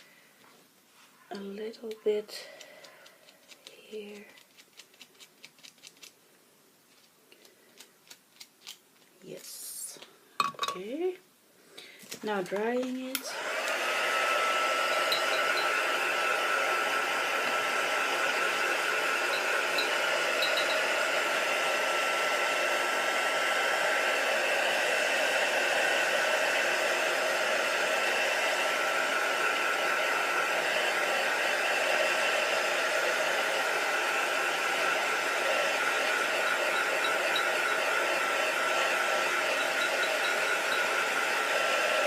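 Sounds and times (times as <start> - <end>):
hot-air dryer blowing: 12.9 - 42.0.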